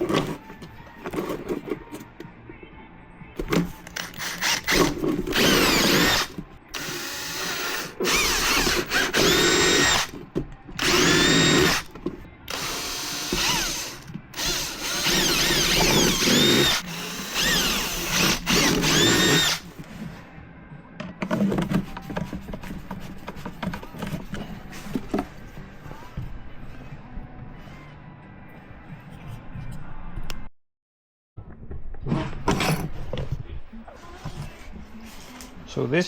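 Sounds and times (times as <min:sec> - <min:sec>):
power drill motor whine: 0:04.0 - 0:10.1, 0:10.8 - 0:11.9, 0:12.5 - 0:19.6.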